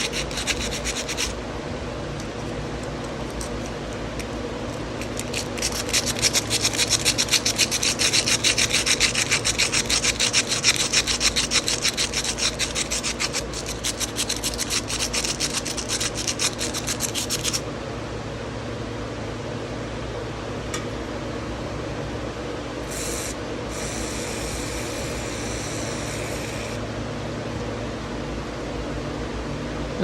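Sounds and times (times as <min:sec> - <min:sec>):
sandpaper scrubbing metal: 0:00.0 - 0:01.4, 0:05.0 - 0:17.6
steady low hum: 0:00.0 - 0:30.0.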